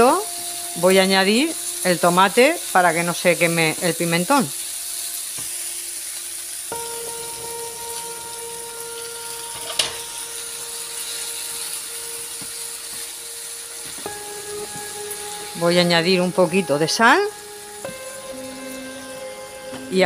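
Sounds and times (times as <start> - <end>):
food sizzling in a frying pan: 0.0 - 20.0
induction hob electronic whine: 0.0 - 20.0.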